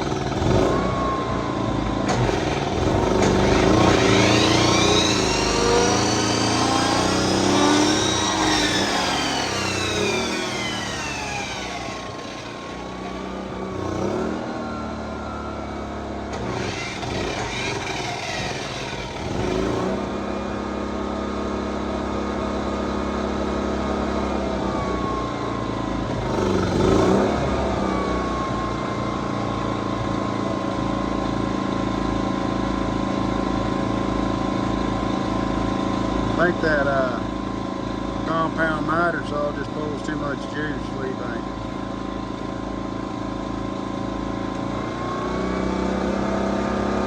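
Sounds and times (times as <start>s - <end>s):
miter saw motor winding up: 0.0s - 1.2s, 1.8s - 20.7s
generator engine running: 0.0s - 47.0s.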